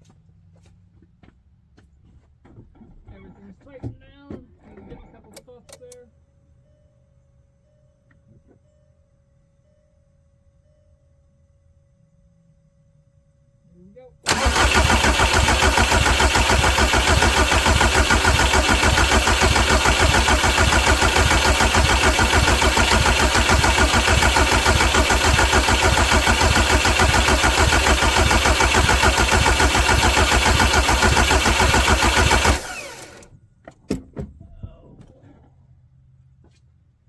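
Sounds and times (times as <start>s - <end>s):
car engine cranking on starter: 14.3s - 33.3s.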